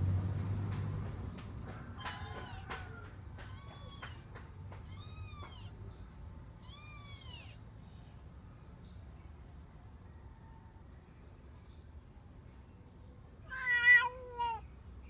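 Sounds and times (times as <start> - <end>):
cat meowing: 2.0 - 2.8, 3.4 - 5.8, 6.6 - 7.6, 13.4 - 14.7.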